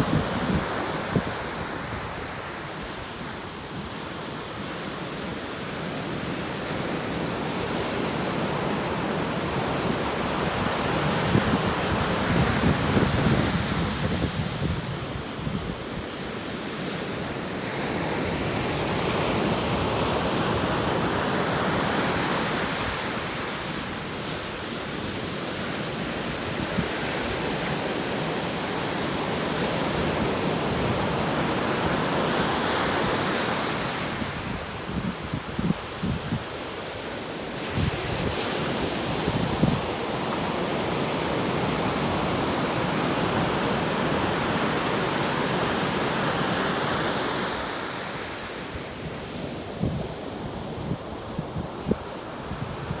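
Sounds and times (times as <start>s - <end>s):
wind on microphone: 0.0s - 3.2s, 9.4s - 16.2s, 29.4s - 37.0s, 37.6s - 47.9s
ocean waves breaking on shore: 0.0s - 53.0s.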